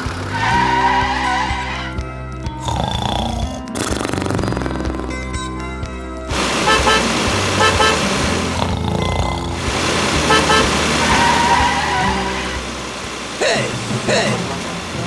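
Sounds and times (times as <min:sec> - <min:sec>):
background din: 0:06.4 - 0:15.0
car horn honking: 0:06.6 - 0:08.5, 0:10.1 - 0:12.6.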